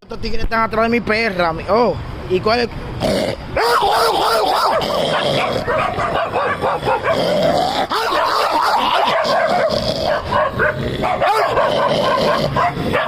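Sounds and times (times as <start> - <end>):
dog whining: 3.6 - 13.0
dog yipping and barking: 3.6 - 13.0.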